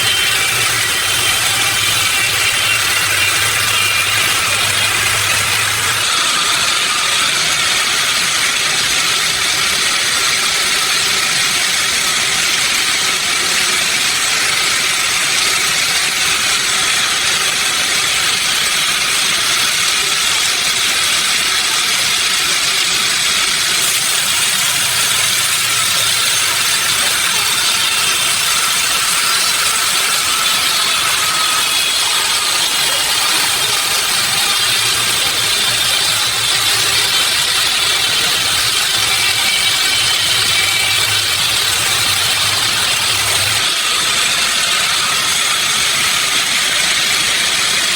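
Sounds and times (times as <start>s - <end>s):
sawmill machinery running: 0.0s - 47.9s.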